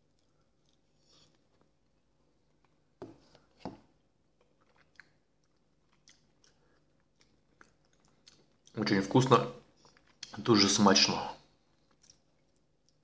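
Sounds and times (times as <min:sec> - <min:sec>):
faint close-up chewing: 0:00.0 - 0:03.5, 0:04.3 - 0:08.9, 0:09.6 - 0:10.4, 0:11.6 - 0:13.0.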